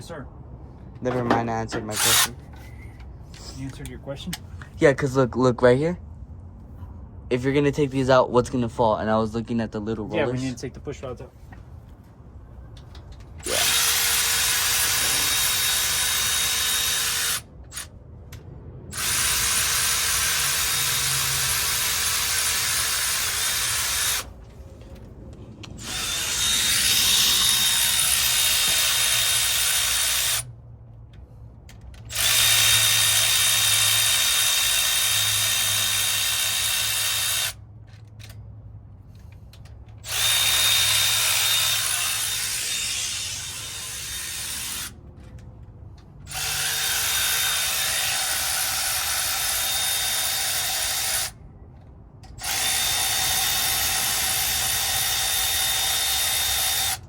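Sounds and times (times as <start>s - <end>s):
cordless power tool spinning: 2.0s - 2.4s, 13.4s - 17.9s, 18.9s - 24.4s, 25.7s - 30.5s, 32.1s - 37.6s, 40.0s - 45.0s, 46.3s - 51.4s, 52.4s - 57.0s.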